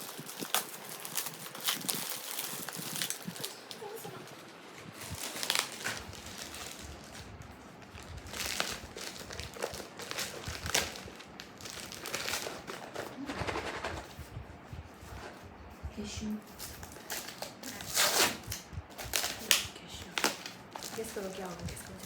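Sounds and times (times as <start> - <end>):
plastic packaging crinkling: 0.0 - 14.1, 16.6 - 22.0.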